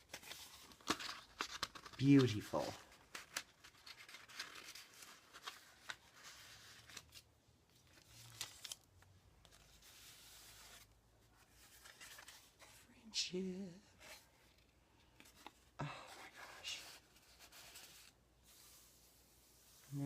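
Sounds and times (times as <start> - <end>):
paper rustling: 0.0 - 12.8.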